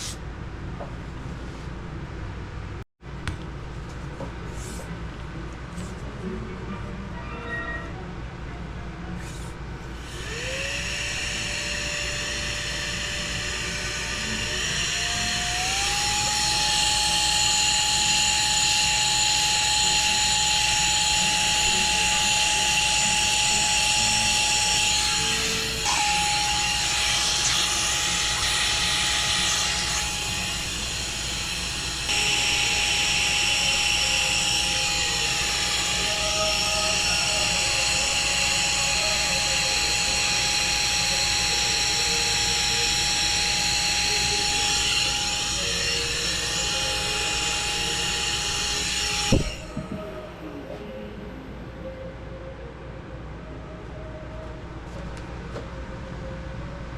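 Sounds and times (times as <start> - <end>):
vacuum motor whining: 10.0 - 50.3.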